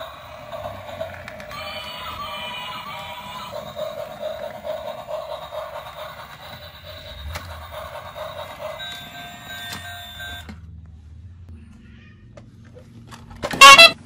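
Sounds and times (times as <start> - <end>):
toy train motor humming: 0.0 - 10.5.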